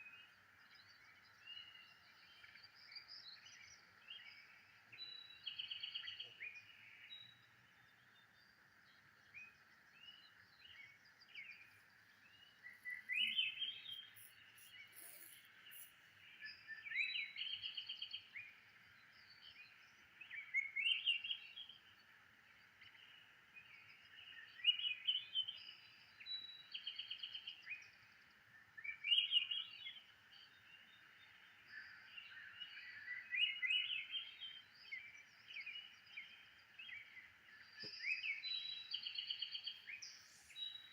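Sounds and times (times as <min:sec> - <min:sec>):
bird chirping phrase: 0:10.0 - 0:18.2.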